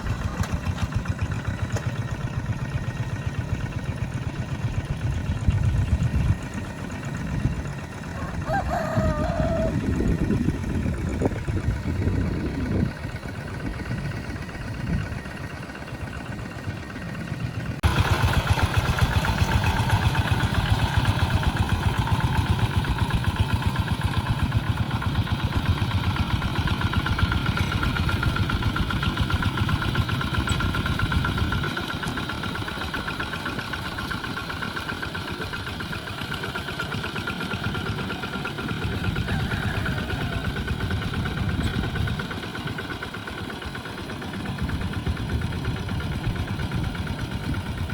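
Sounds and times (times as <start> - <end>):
tractor engine chugging: 0.0 - 47.9.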